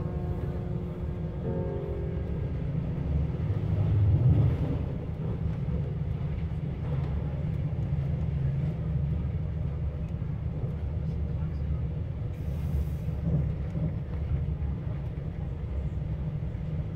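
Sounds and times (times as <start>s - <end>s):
oncoming train rushing past: 0.0s - 9.3s
train wheels rumbling on track: 0.0s - 16.9s.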